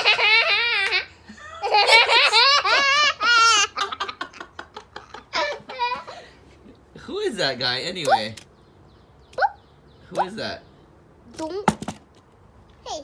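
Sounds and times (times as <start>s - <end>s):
child laughing: 0.0s - 6.4s.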